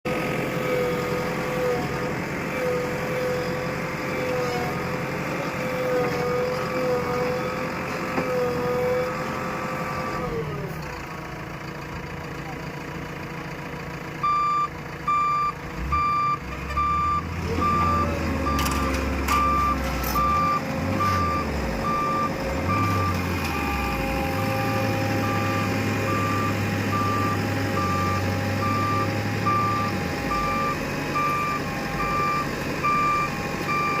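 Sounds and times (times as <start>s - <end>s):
diesel engine working: 0.1s - 34.0s
reversing alarm beeping: 14.2s - 34.0s.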